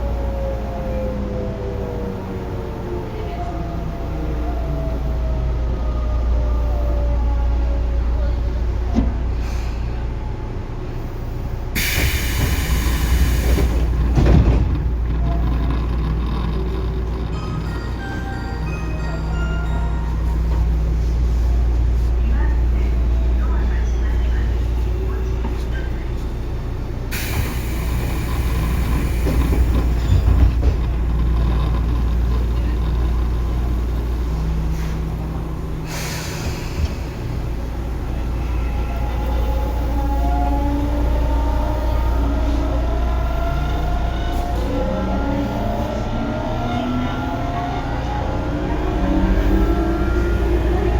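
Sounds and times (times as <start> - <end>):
train wheels rumbling on track: 0.0 - 50.9
low hum: 13.4 - 19.3.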